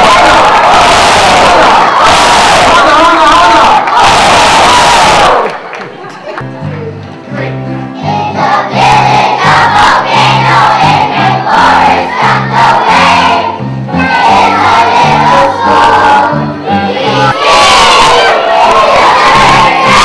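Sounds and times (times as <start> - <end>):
children's choir singing: 7.9 - 20.0.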